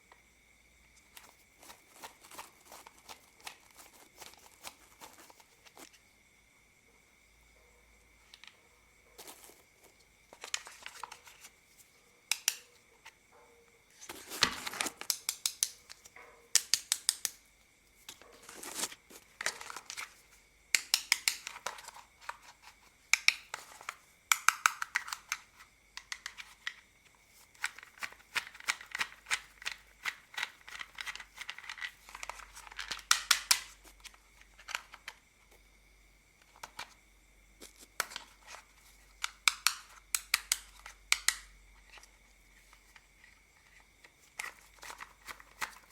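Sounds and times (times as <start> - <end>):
plastic clicks and rattles: 20.8 - 26.8, 27.4 - 35.2, 38.0 - 42.1, 43.6 - 45.9.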